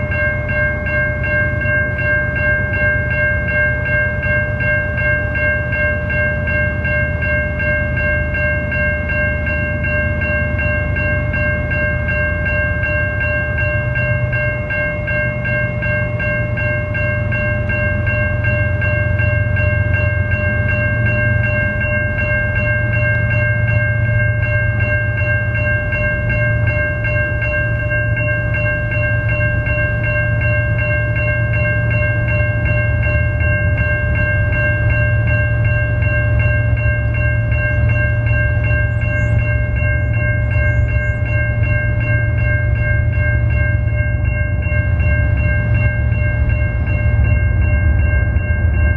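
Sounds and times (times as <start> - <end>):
level-crossing warning bell ringing: 0.0 - 48.9
train rumbling past: 0.0 - 48.9.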